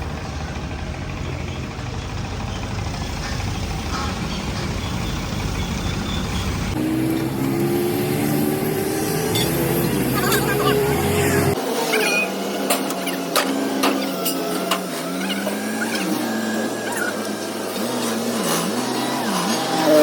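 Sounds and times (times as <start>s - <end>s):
engine note rising in pitch: 0.0s - 11.6s
engine humming steadily: 0.0s - 11.7s, 12.3s - 20.0s.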